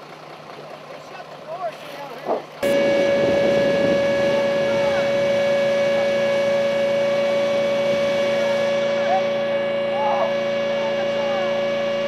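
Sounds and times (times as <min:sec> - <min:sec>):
machine hum with high tone: 0:02.6 - 0:12.0.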